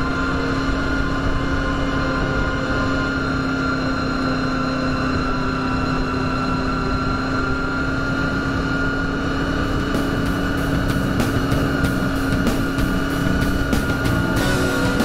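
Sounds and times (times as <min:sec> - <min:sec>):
motorcycle engine cruising: 0:00.0 - 0:15.0
wind rush: 0:06.8 - 0:15.0.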